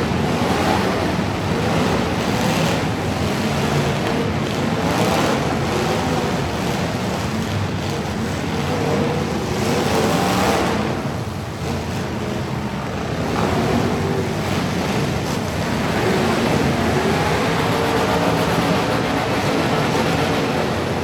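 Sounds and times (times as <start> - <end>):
truck engines running: 0.0 - 21.0
steady rushing noise: 5.4 - 21.0.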